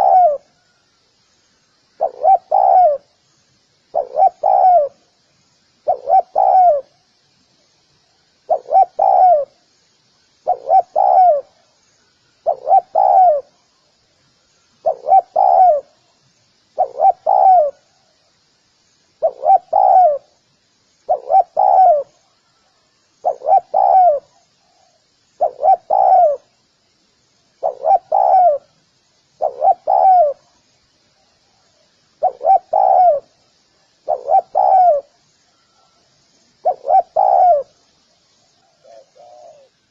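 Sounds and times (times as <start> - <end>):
dove cooing: 0.0 - 0.5, 2.0 - 3.1, 3.9 - 5.0, 5.8 - 7.0, 8.5 - 9.6, 10.4 - 11.6, 12.4 - 13.6, 14.8 - 16.0, 16.8 - 17.9, 19.2 - 20.4, 21.1 - 22.3, 23.2 - 26.5, 27.6 - 28.8, 29.4 - 30.6, 32.2 - 33.4, 34.0 - 36.0, 36.6 - 37.8, 38.6 - 39.8.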